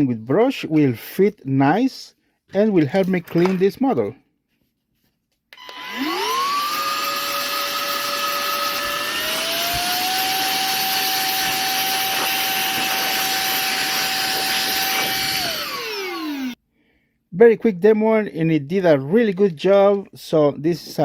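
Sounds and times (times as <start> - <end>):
air duster fan motor whine: 5.6 - 16.6.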